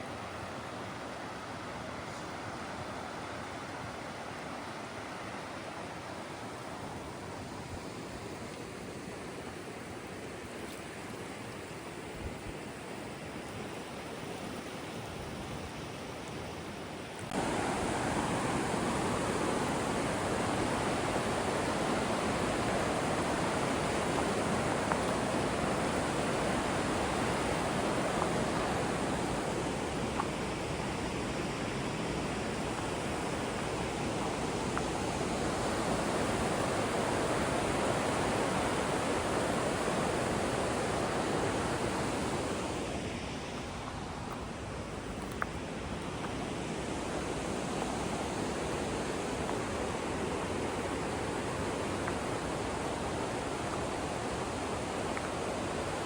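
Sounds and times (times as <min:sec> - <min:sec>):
river rapids rushing: 0:17.3 - 0:56.0.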